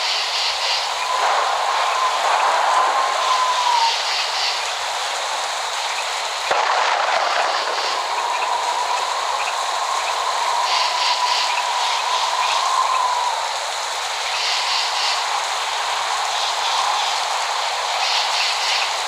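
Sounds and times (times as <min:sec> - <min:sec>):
heavy rain: 0:00.0 - 0:19.0
thunder crack: 0:01.0 - 0:04.4, 0:06.4 - 0:12.7.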